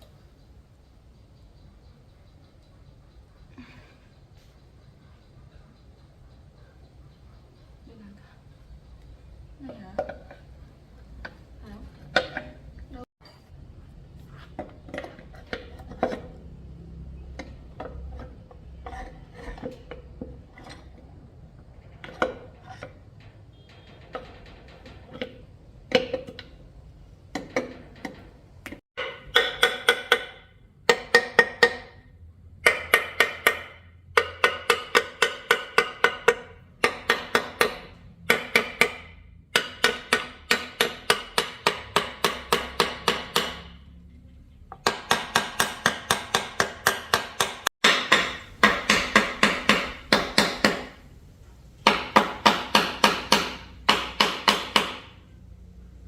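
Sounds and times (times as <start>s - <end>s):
hammer striking metal: 29.0s - 44.0s, 44.7s - 51.0s, 51.8s - 55.2s.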